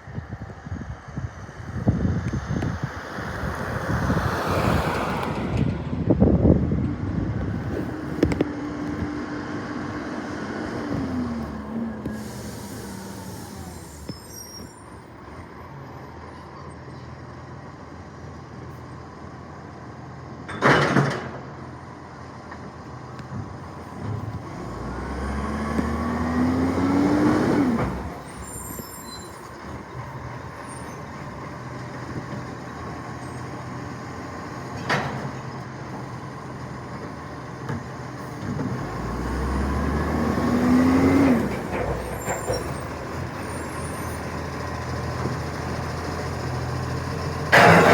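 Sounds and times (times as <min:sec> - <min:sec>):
garbage truck engine revving: 0:24.0 - 0:31.6, 0:38.2 - 0:47.9.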